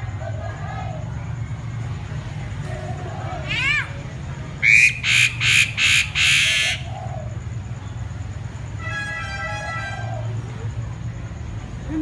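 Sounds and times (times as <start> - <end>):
buzzy bird call: 4.6 - 7.1
bird harsh calls: 4.6 - 7.3.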